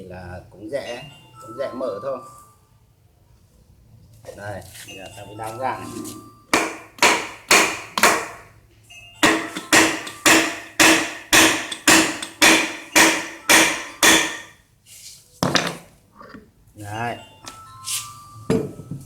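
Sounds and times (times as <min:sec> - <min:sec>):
hammer blows on metal: 0:06.5 - 0:08.5, 0:09.2 - 0:14.6.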